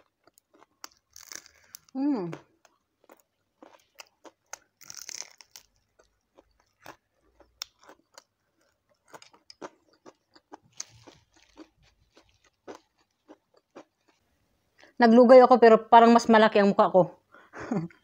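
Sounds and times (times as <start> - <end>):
crunching fried food: 0.0 - 14.3
quiet chewing: 0.0 - 14.3.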